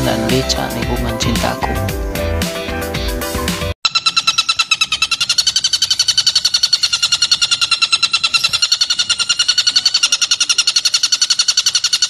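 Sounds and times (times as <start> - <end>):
bird calling in fast high notes: 3.8 - 12.0.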